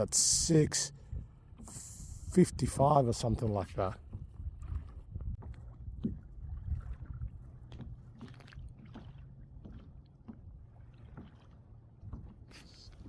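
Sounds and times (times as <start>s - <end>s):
small waves lapping against hull: 0.0s - 13.0s
faint knocks and splashes: 3.1s - 13.0s.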